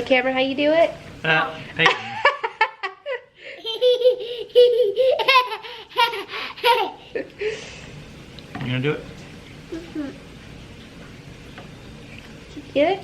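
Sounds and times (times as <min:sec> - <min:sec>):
child giggling: 0:03.0 - 0:07.3.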